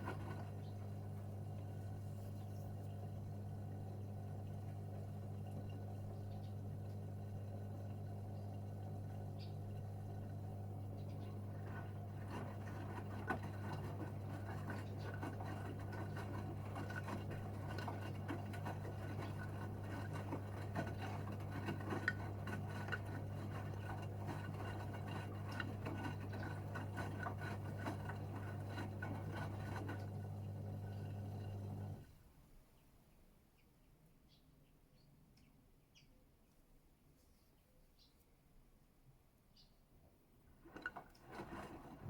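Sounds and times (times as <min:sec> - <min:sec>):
washing machine running: 0:00.0 - 0:32.2, 0:40.5 - 0:42.0
water and laundry ticking: 0:03.0 - 0:32.0.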